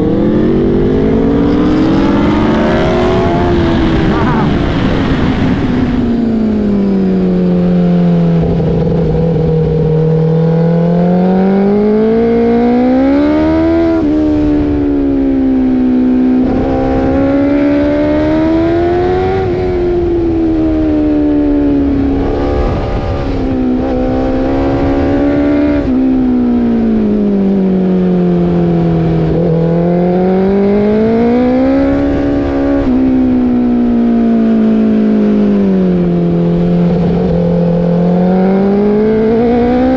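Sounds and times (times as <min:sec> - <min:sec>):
motorcycle engine revving: 0:00.0 - 0:39.9
wind rumble: 0:00.0 - 0:39.9.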